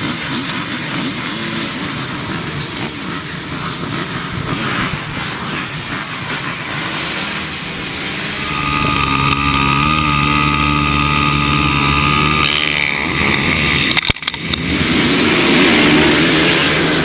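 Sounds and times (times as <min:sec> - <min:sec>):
motorbike engine revving: 0:07.2 - 0:17.0
rushing noise: 0:07.9 - 0:14.4
sharp clicks: 0:08.4 - 0:14.6.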